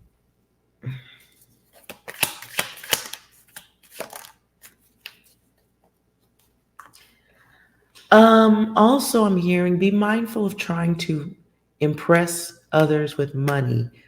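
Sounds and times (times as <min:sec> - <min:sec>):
cards being shuffled: 0:01.3 - 0:07.1.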